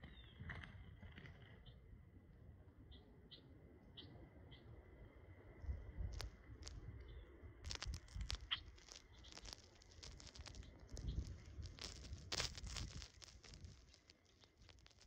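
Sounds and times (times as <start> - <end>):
birds pecking at food: 7.7 - 15.0.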